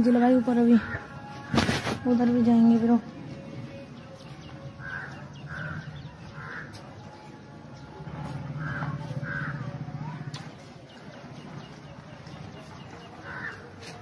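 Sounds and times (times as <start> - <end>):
rough bird calls: 4.6 - 6.9, 8.4 - 9.8, 10.9 - 14.0.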